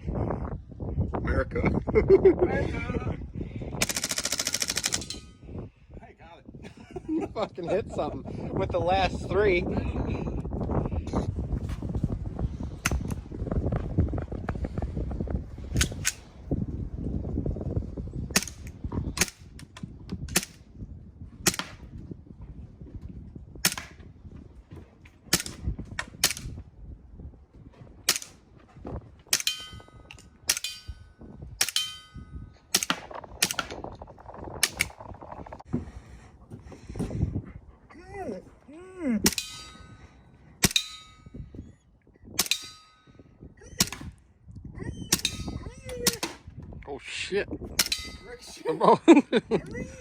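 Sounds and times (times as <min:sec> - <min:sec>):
bb gun firing: 0:21.4 - 0:21.9, 0:23.6 - 0:24.0, 0:32.7 - 0:33.8
short metallic ring: 0:39.4 - 0:41.5.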